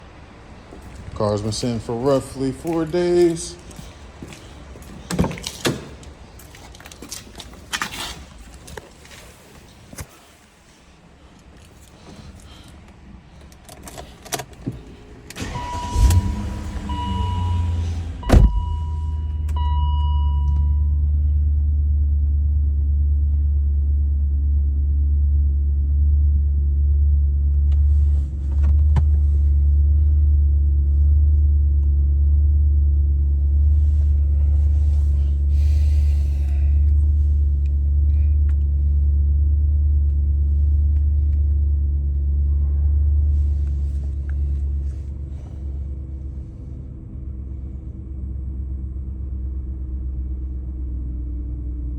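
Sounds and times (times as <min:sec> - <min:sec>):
car engine cranking and idling: 0:00.0 - 0:51.9
short high beeps: 0:16.9 - 0:20.9.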